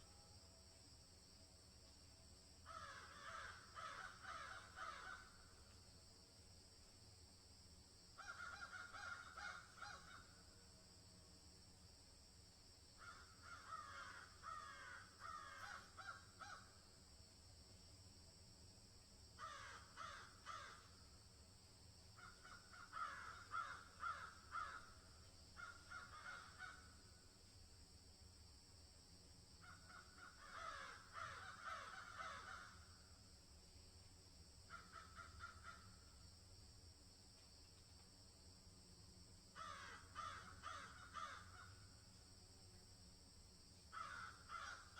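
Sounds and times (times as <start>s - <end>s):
harsh caw-like bird calls: 2.6s - 5.5s, 8.2s - 10.4s, 13.0s - 16.8s, 19.4s - 21.0s, 22.2s - 27.0s, 29.6s - 32.9s, 34.7s - 36.0s, 39.6s - 41.8s, 43.9s - 44.9s.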